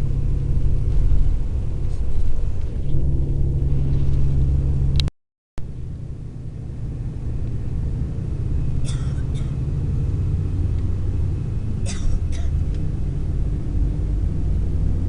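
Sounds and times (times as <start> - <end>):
coach engine and road rumble: 0.0 - 15.0.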